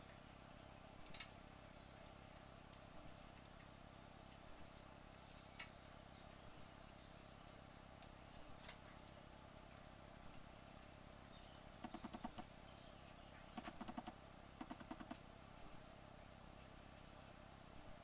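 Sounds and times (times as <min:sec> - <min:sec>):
low hum: 0:00.0 - 0:18.0
faint high chirps: 0:11.3 - 0:15.2.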